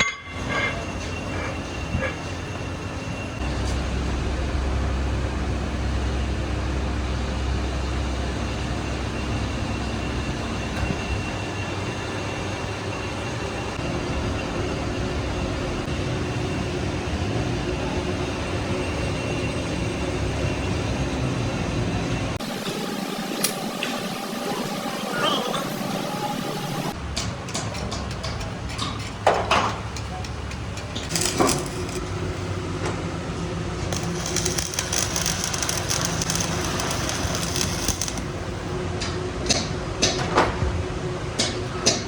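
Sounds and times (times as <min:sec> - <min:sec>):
machine humming: 0:22.4 - 0:27.0, 0:31.0 - 0:32.7, 0:33.8 - 0:38.8.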